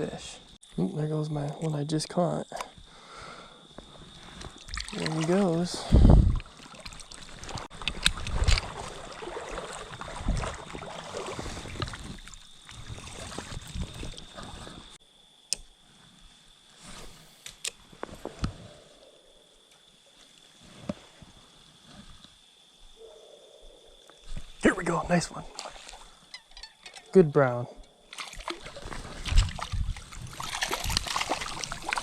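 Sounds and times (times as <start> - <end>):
rushing creek water: 4.6 - 14.6, 28.1 - 32.0.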